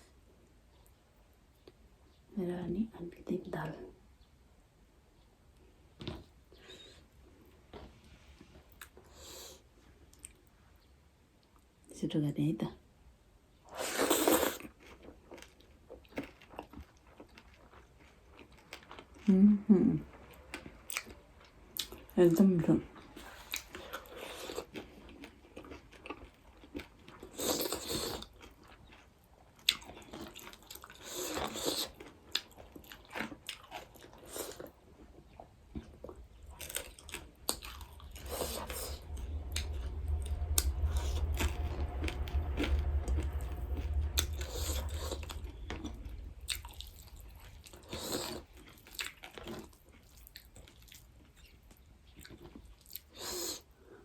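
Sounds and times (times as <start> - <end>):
person chewing food: 23.3 - 39.7, 46.1 - 53.7
low rumble: 34.8 - 50.4.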